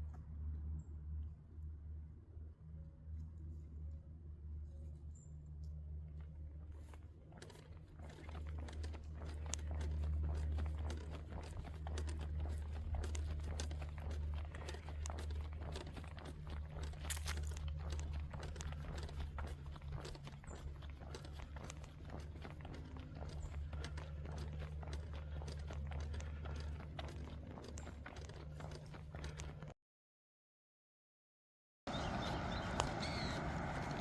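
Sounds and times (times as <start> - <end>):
footsteps crunching on trail: 6.7 - 29.7, 31.9 - 34.0.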